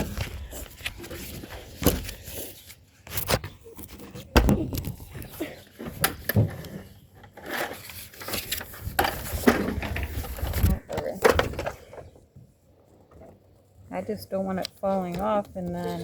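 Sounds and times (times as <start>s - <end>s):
paper rustling: 0.0s - 5.5s, 7.4s - 10.8s.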